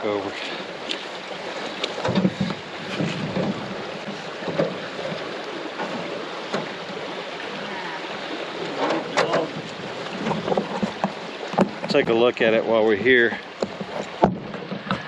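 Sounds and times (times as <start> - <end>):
rushing water: 0.0 - 15.0
knocks on canoe hull: 1.8 - 5.2, 8.8 - 12.6, 13.3 - 15.0
wind on microphone: 2.0 - 5.3.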